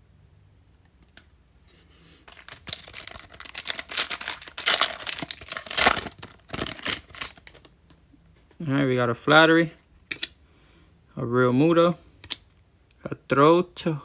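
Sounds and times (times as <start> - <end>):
foil wrapper tearing and crinkling: 2.3 - 7.7.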